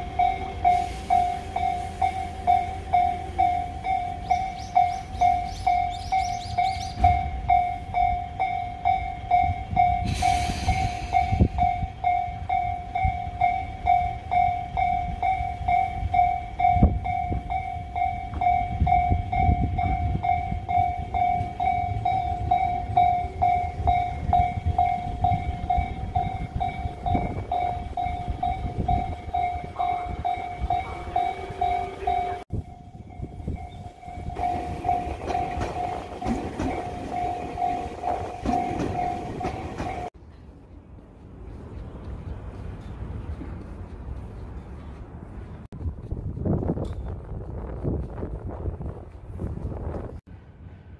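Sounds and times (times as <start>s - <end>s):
level crossing alarm ringing: 0.0s - 10.3s, 11.2s - 40.1s
short hiss: 10.1s - 11.2s
train wheels clacking over rails: 34.4s - 40.1s.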